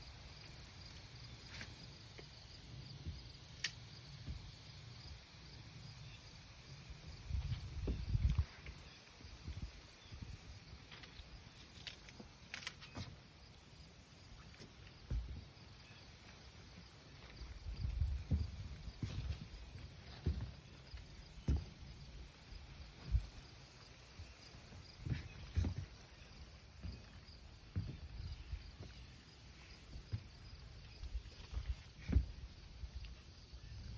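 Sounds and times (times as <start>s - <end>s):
low thumps on microphone: 7.3s - 8.6s, 15.1s - 15.5s, 17.3s - 23.5s, 25.0s - 26.0s, 27.7s - 29.0s, 31.0s - 32.5s.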